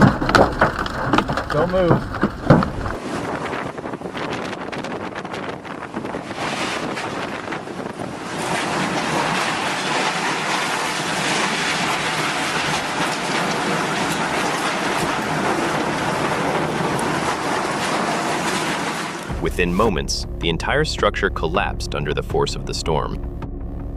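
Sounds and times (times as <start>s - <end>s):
storm wind rushing: 2.3s - 10.5s.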